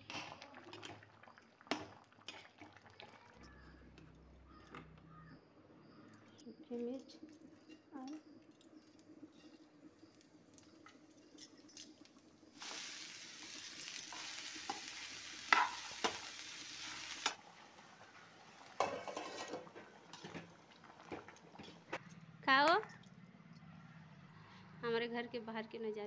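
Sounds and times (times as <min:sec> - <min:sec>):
vegetables sizzling in hot oil: 0:12.5 - 0:21.4.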